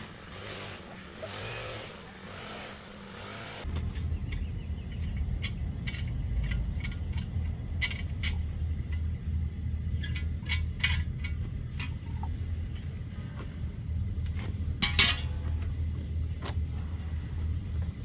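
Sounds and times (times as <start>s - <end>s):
motor humming: 0.0s - 7.7s.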